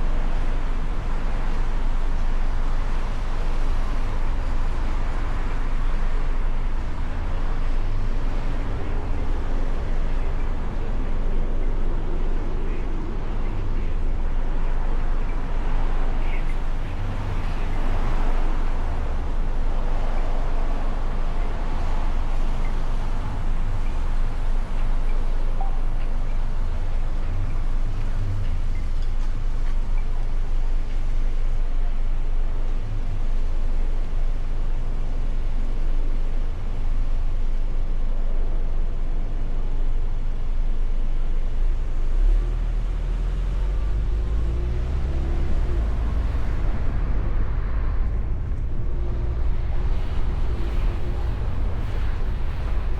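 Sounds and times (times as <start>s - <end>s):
wind rush: 0.0s - 28.7s, 42.2s - 52.9s
car engine rumble: 0.0s - 52.9s
road noise: 0.0s - 52.9s.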